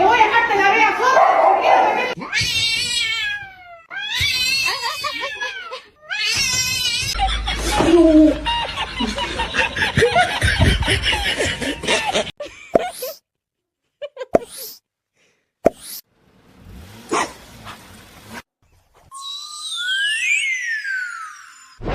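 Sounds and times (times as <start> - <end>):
cat yowling: 1.5 - 7.2
people laughing: 4.6 - 6.0, 7.0 - 12.6
low rumble: 7.2 - 11.0.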